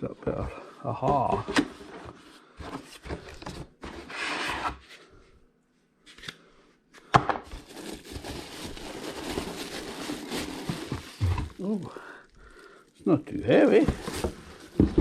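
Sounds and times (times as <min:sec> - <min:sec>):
cardboard scraping: 0:01.3 - 0:05.0, 0:07.8 - 0:11.6, 0:13.6 - 0:15.0
cardboard packaging rustling: 0:07.5 - 0:12.8, 0:13.5 - 0:15.0.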